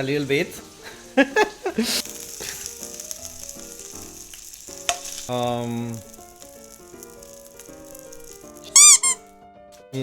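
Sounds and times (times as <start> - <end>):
patty sizzling in a frying pan: 0.0 - 9.4.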